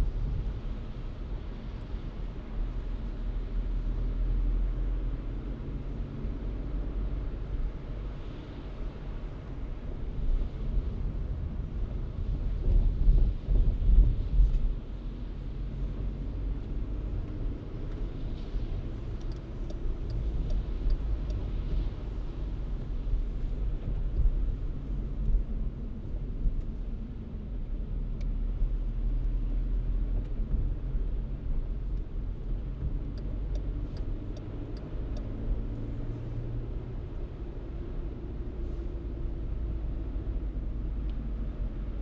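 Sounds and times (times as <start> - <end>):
car engine and road noise: 0.0 - 42.0
faint light clicks: 17.2 - 24.4, 31.6 - 37.2.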